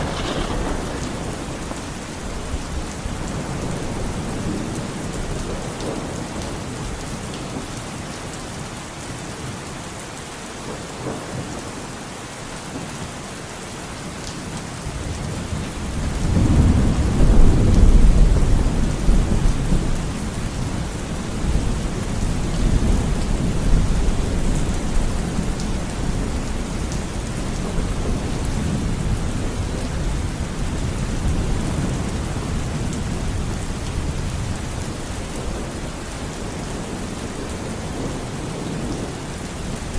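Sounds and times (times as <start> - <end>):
thunder rumbling: 0.0 - 6.4, 15.6 - 36.4
steady rain falling: 0.0 - 39.9.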